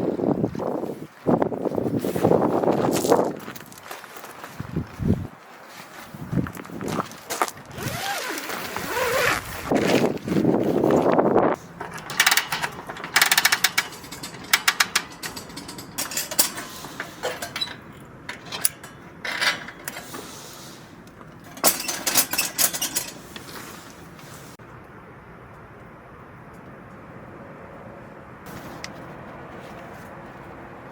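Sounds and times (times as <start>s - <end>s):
loud rustle: 7.2s - 17.8s
mechanical clicking and rattling: 11.6s - 20.4s, 21.0s - 24.0s.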